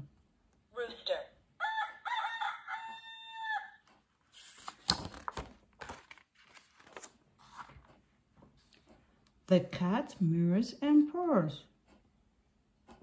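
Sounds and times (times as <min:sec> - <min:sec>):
book page turning rustle: 0:04.2 - 0:09.0
paper page flap: 0:04.4 - 0:07.7.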